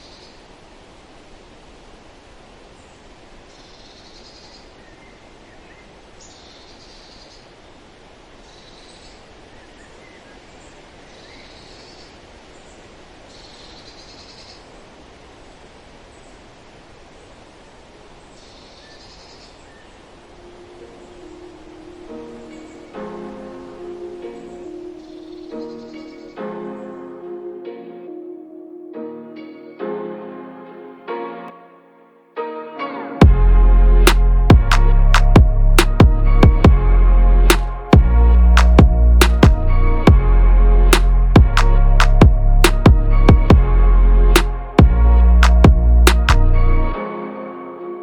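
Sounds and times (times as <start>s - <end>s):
bird calling: 18.4s - 28.9s
faint music: 19.9s - 48.0s
waterfall rushing: 20.0s - 31.3s.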